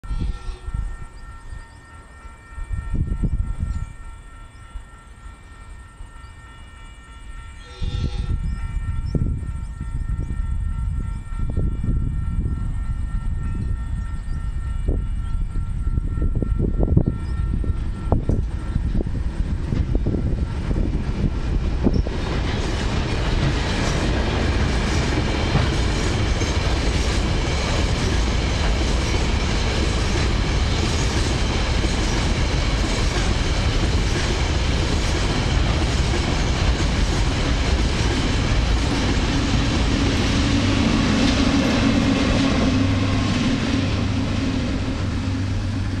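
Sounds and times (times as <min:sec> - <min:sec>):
diesel engine hum: 0:39.7 - 0:46.0.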